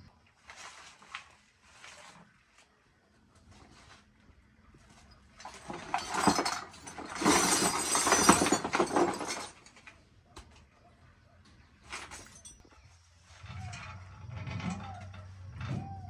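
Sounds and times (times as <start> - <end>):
hard objects clattering together: 5.4 - 10.0.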